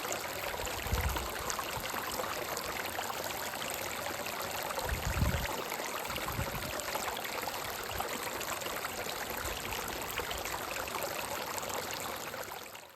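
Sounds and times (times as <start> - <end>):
stream running over rocks: 0.0 - 12.9.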